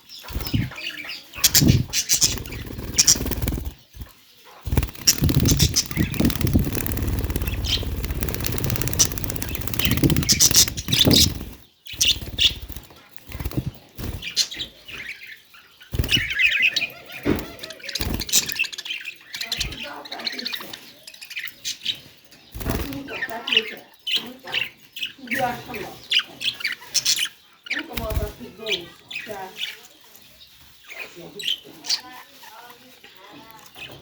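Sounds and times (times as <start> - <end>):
budgerigars chirping: 0.2 - 3.8, 4.7 - 14.8
wings fluttering: 0.2 - 14.7, 15.9 - 16.5, 22.6 - 23.1
low rumble: 5.3 - 11.2.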